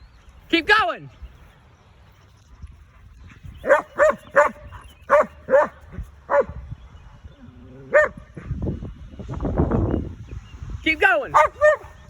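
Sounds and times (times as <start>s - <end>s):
dog barking: 3.6s - 6.6s, 7.9s - 8.2s, 11.3s - 12.0s.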